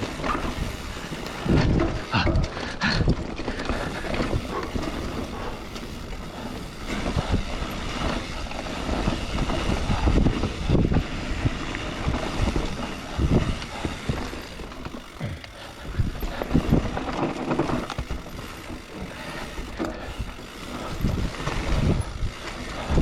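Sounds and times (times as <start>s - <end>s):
bike knocks and rattles: 0.0s - 23.0s
bike tyre rumble on dirt: 0.0s - 23.0s
wind on microphone: 3.8s - 14.6s, 19.6s - 23.0s.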